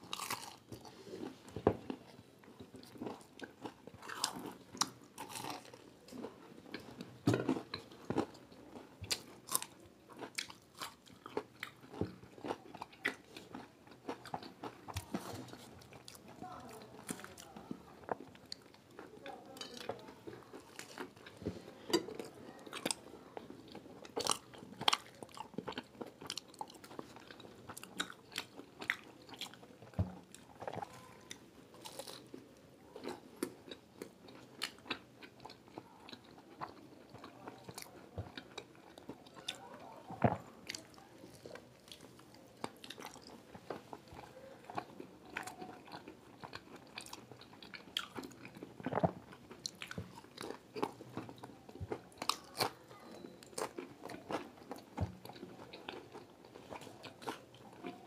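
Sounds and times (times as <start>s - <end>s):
crunching crisp pastry: 0.0s - 58.0s
wet chewing: 33.0s - 58.0s.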